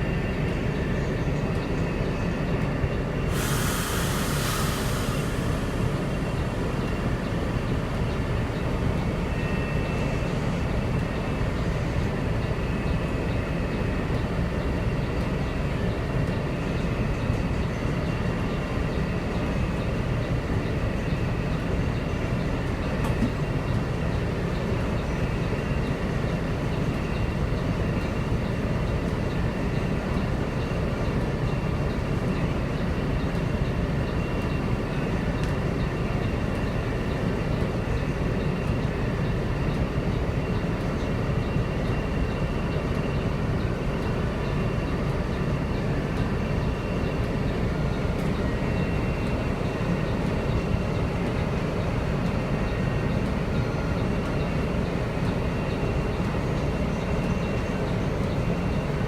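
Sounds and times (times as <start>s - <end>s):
faint steady tones: 0.0s - 59.0s
heavy rain: 3.3s - 7.1s
storm runoff water rushing: 3.3s - 7.1s.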